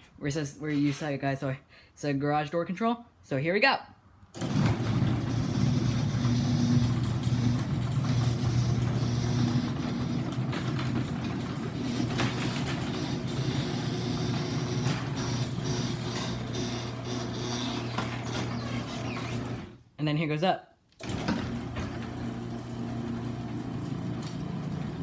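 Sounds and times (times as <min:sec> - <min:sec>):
garage door opener motor hum: 0:04.3 - 0:19.8, 0:21.0 - 0:25.0.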